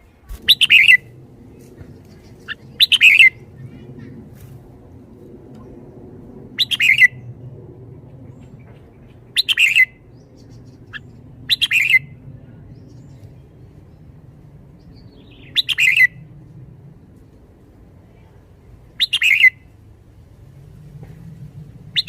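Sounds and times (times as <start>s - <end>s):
bulbul singing: 0.3s - 1.1s, 2.0s - 3.7s.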